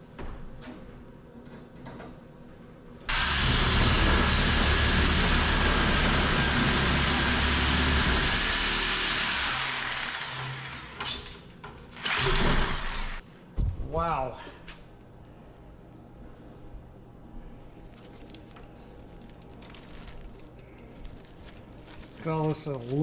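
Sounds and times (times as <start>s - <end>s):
electric power tool whine: 3.1s - 11.4s, 12.0s - 13.2s.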